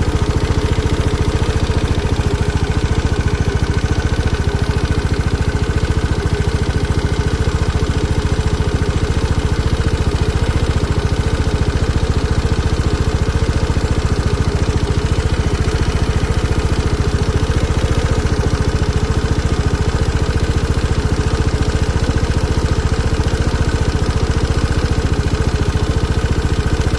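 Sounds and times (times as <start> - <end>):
abnormal engine noise: 0.0 - 7.8
scooter engine idling: 0.0 - 26.9.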